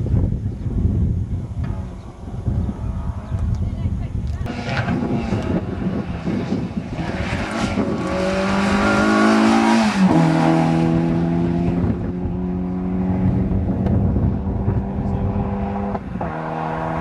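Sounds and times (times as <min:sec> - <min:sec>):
rally car engine passing by: 0:04.4 - 0:17.0.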